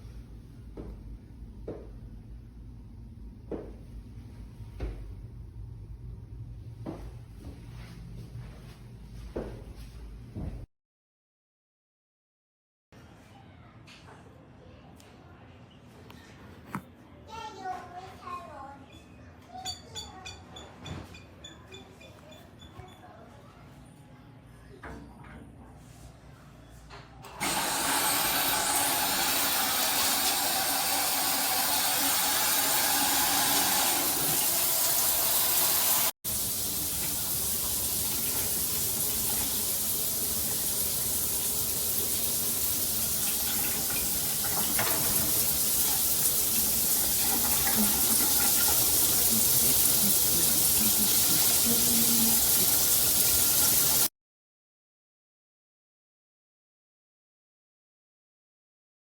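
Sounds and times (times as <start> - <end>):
shower water spraying: 27.4 - 54.1.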